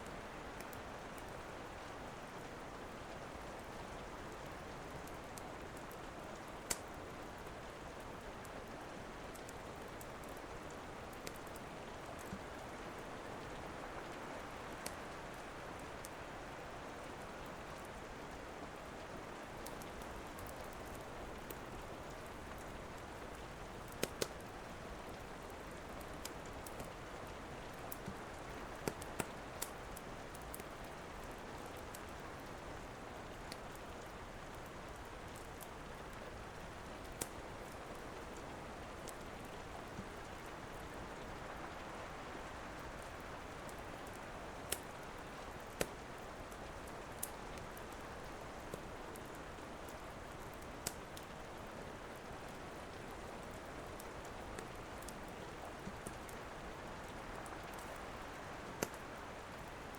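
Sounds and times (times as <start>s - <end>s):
steady rain: 0.0s - 59.9s
wood fire crackling and popping: 5.0s - 7.4s, 11.2s - 12.6s, 23.7s - 25.3s, 27.8s - 32.6s, 35.0s - 38.4s, 43.1s - 51.4s, 52.2s - 59.9s.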